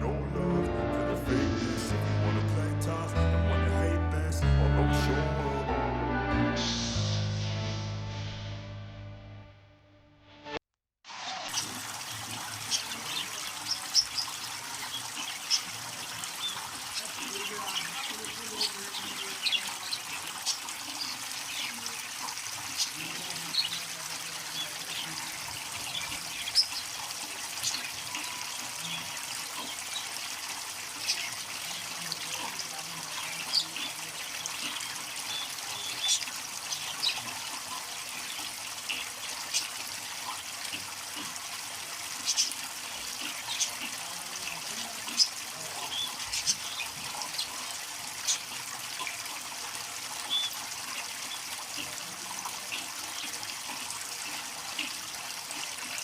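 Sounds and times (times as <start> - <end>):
water trickling: 11.2 - 56.0.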